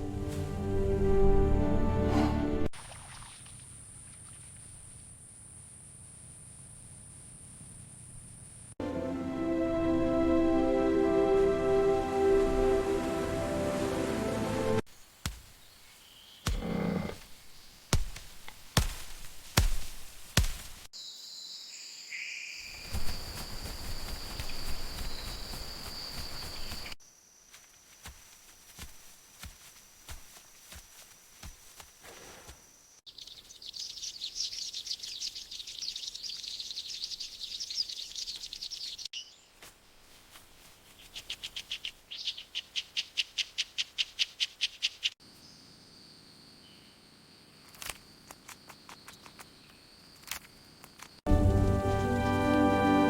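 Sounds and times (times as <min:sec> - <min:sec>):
insect high-pitched trill: 0:21.0 - 0:28.9.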